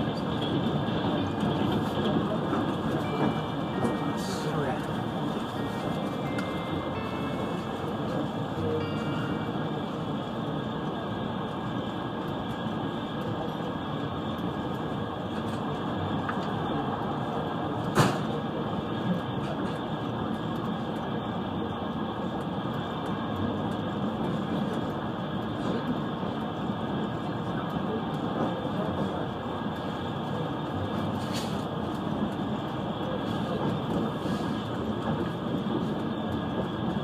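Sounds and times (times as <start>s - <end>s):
train rumbling on rails: 0.0s - 37.0s.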